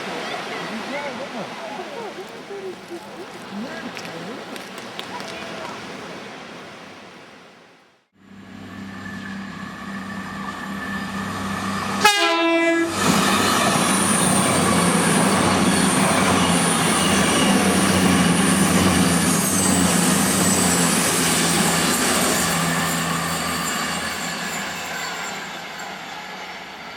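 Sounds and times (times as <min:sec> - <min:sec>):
train engine hum: 0:08.2 - 0:26.9
train wheels on rails: 0:08.6 - 0:26.9
train horn: 0:08.7 - 0:13.0.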